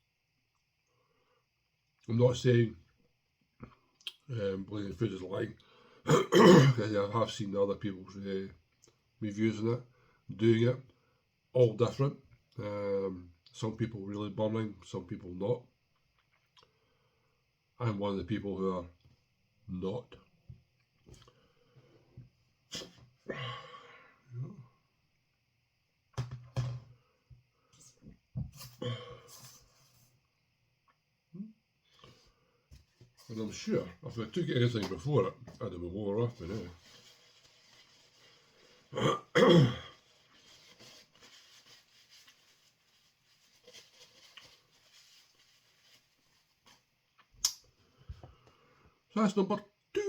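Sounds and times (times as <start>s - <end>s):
man clearing his throat: 6.1s - 6.9s, 38.9s - 40.0s.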